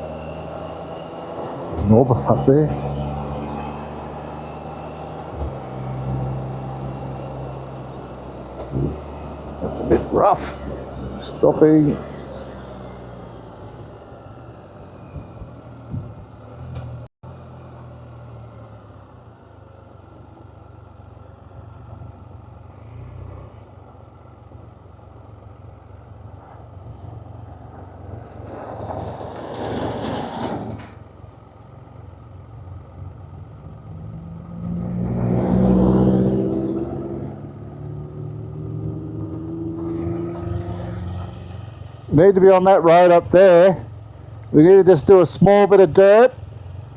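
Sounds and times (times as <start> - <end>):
trike engine idling: 0.0 - 34.6, 35.6 - 46.9
vehicles passing by: 0.0 - 46.9.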